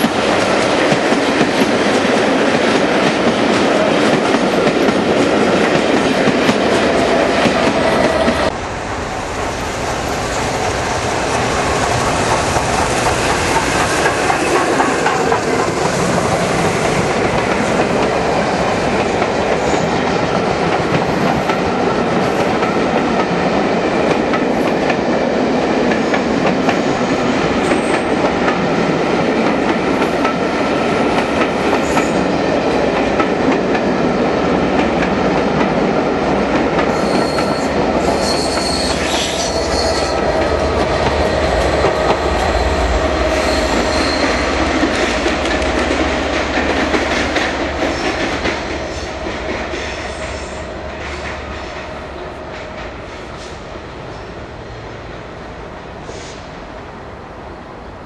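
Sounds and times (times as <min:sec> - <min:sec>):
train wheels clacking on rails: 0:00.0 - 0:08.6, 0:09.2 - 0:53.8
wheel squeal: 0:36.9 - 0:40.2, 0:43.3 - 0:44.6.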